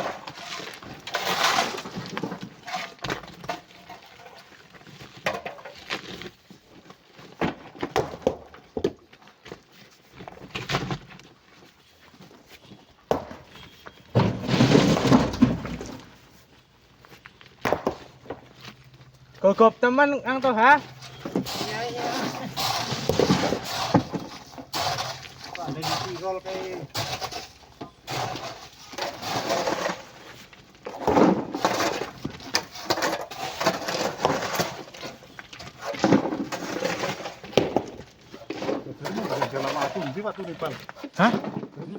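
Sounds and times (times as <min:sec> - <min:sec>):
rocks knocking and clattering: 0:00.0 - 0:11.4, 0:12.6 - 0:16.3, 0:17.2 - 0:41.9
rubble crashing pour: 0:14.2 - 0:16.3, 0:20.6 - 0:41.9.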